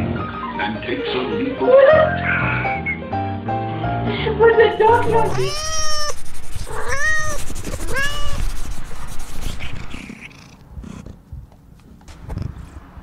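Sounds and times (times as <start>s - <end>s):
cat meowing: 4.8s - 10.5s.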